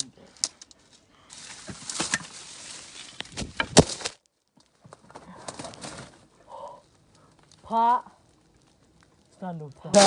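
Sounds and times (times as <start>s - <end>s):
leaves and twigs rustling: 0.0s - 10.0s
sharp crack: 9.8s - 10.0s.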